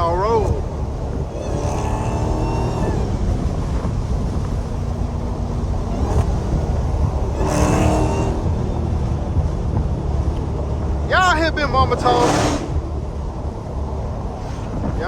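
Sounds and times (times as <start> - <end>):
car exhaust rumbling: 0.0 - 15.0.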